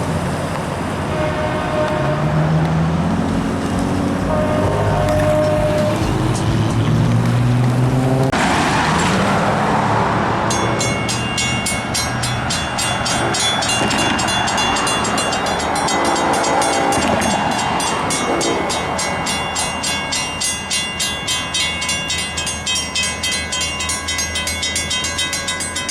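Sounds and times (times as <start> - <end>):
train engine hum: 0.0 - 25.9
train rolling noise: 0.0 - 25.9
metallic crossing bell ringing: 10.4 - 25.9.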